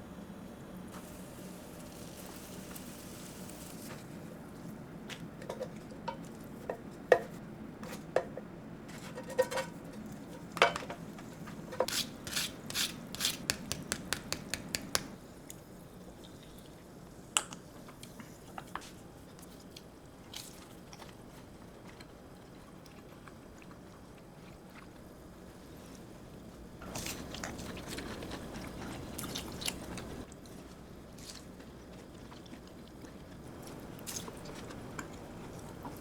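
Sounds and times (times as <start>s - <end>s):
utensils clinking on dishes: 9.0s - 11.0s.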